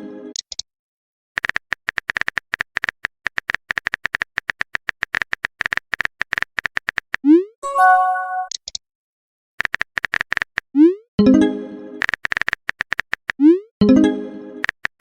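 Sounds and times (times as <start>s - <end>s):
phone keyboard typing clicks: 1.4s - 7.1s, 9.6s - 10.6s, 12.0s - 13.4s.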